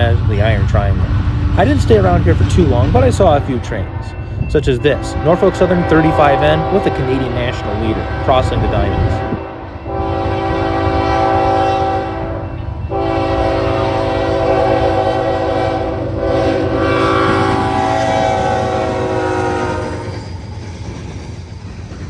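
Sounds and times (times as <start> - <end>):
low rumble of passing train: 0.0 - 22.0
locomotive air horn: 4.9 - 20.2.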